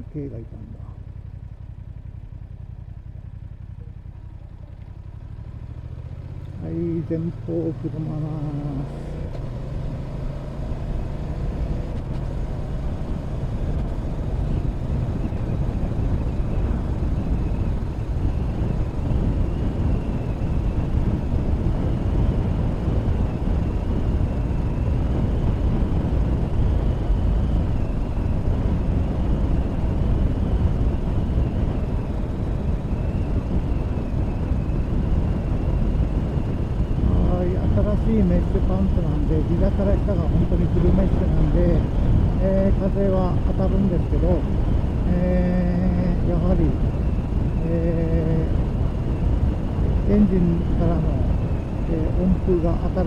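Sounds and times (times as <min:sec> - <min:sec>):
motorcycle engine: 0:00.0 - 0:53.0
road noise: 0:00.0 - 0:53.0
wind rushing over microphone: 0:06.3 - 0:53.0.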